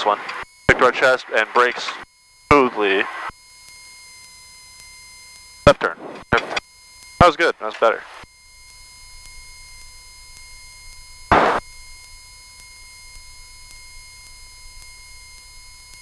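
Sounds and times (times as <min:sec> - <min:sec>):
electrical whine tones: 0:00.0 - 0:03.3, 0:05.7 - 0:06.6, 0:07.2 - 0:08.2, 0:11.3 - 0:11.6.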